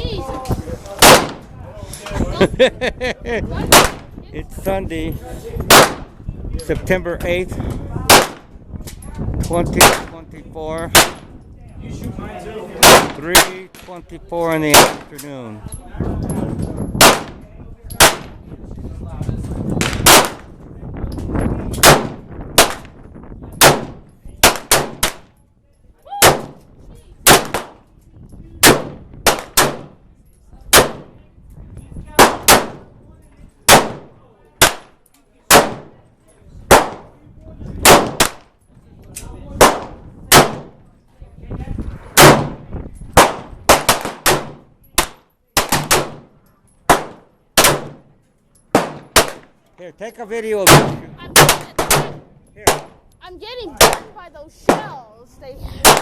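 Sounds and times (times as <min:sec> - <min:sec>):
gunshots: 0:01.0 - 0:01.5, 0:03.6 - 0:04.1, 0:05.7 - 0:06.1, 0:08.1 - 0:08.5, 0:09.7 - 0:10.2, 0:10.9 - 0:11.3, 0:12.8 - 0:13.8, 0:14.6 - 0:15.1, 0:17.0 - 0:17.4, 0:18.0 - 0:18.4, 0:19.8 - 0:20.5, 0:21.8 - 0:22.9, 0:23.6 - 0:25.3, 0:26.2 - 0:26.6, 0:27.2 - 0:27.8, 0:28.6 - 0:30.0, 0:30.7 - 0:31.2, 0:32.2 - 0:32.9, 0:33.7 - 0:34.9, 0:35.5 - 0:35.9, 0:36.7 - 0:37.1, 0:37.8 - 0:38.4, 0:39.6 - 0:40.8, 0:42.2 - 0:46.3, 0:46.9 - 0:48.1, 0:48.7 - 0:49.5, 0:50.6 - 0:53.0, 0:53.8 - 0:54.9.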